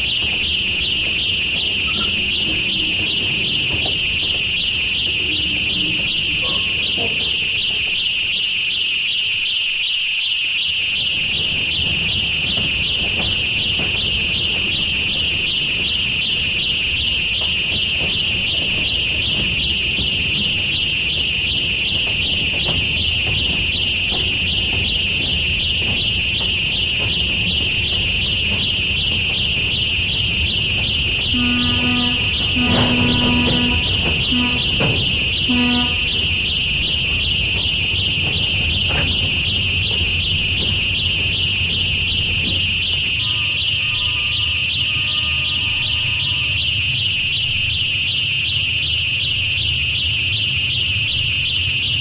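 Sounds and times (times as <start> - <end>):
low train rumble: 0.0 - 8.8, 10.9 - 47.8
high-pitched alarm-like ringing: 0.0 - 48.1
diesel locomotive horn blasts: 31.2 - 36.4, 43.1 - 46.9.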